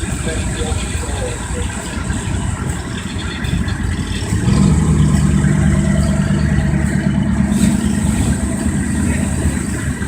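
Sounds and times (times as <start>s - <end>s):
car engine running low speed: 0.0s - 10.0s.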